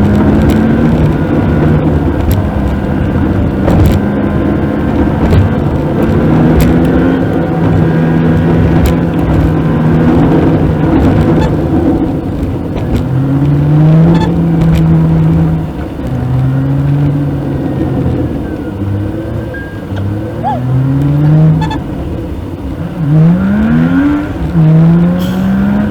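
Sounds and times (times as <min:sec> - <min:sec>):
car engine accelerating: 0:00.0 - 0:25.9
road rumble: 0:00.0 - 0:25.9.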